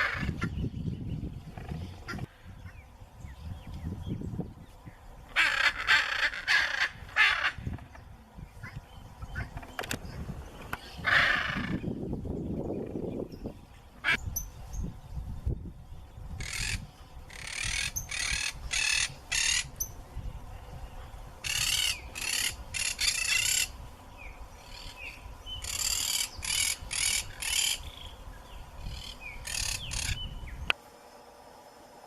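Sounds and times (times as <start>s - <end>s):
macaws squawking: 0.0s - 0.6s, 5.3s - 8.0s, 10.8s - 11.9s, 16.4s - 19.8s, 21.4s - 23.8s, 25.6s - 27.9s, 28.8s - 30.2s.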